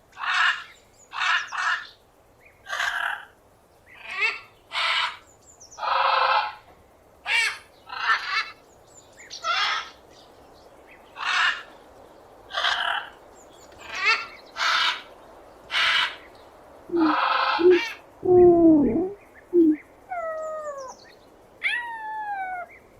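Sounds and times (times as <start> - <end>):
parrot squawking: 16.9 - 18.0.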